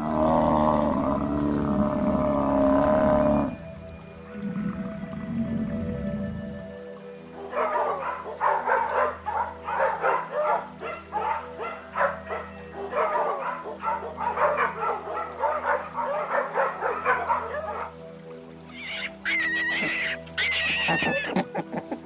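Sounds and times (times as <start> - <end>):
background music tones: 0.0 - 22.0
animal squeaky yipping calls: 18.7 - 21.5.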